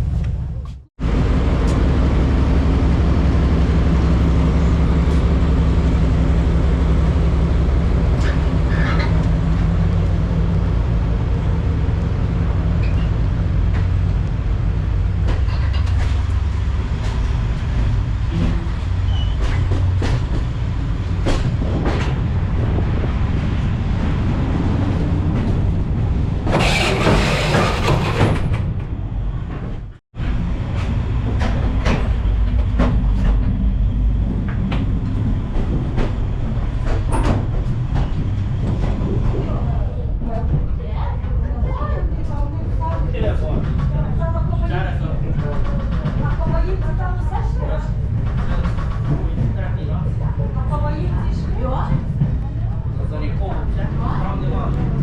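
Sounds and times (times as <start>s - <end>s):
diesel train engine drone: 0.0s - 55.0s
wheels clicking and knocking: 26.4s - 28.8s.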